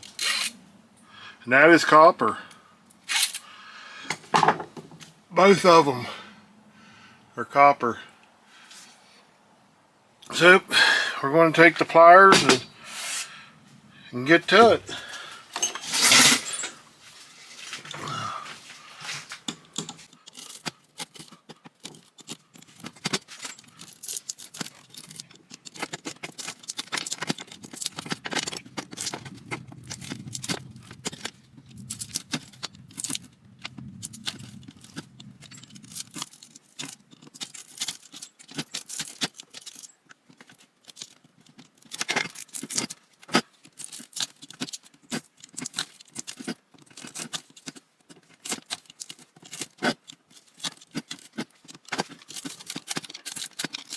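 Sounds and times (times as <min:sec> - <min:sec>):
pliers clicking and snipping wire: 0:31.9 - 0:53.9.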